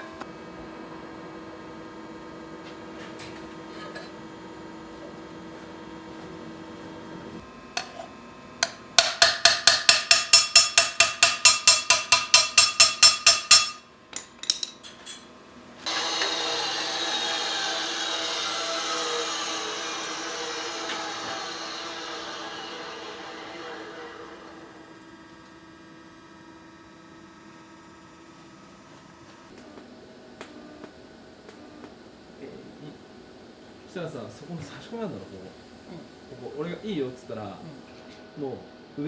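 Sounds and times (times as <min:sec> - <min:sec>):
hammer striking metal: 0:08.6 - 0:15.2
power tool whirring: 0:15.8 - 0:25.2.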